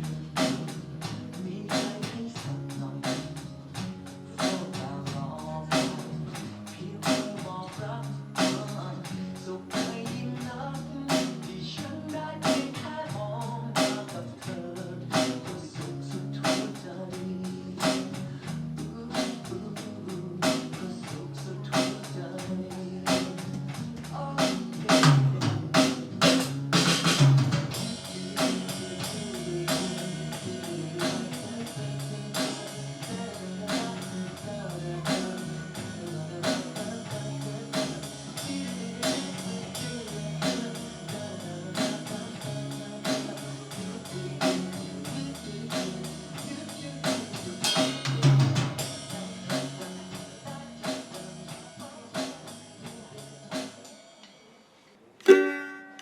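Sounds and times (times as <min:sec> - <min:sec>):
drum kit playing: 0:00.0 - 0:54.3, 0:55.2 - 0:56.0
ukulele playing: 0:55.2 - 0:56.0.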